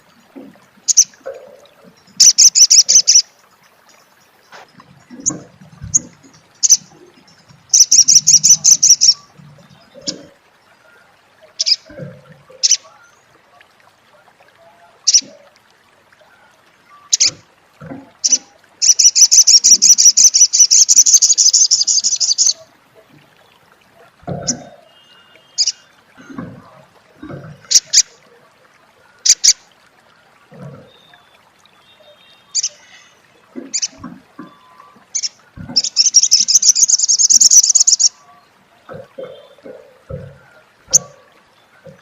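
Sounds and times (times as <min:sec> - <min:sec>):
bird trilling: 0:02.2 - 0:03.2, 0:07.7 - 0:09.2, 0:18.3 - 0:22.6, 0:34.5 - 0:38.1.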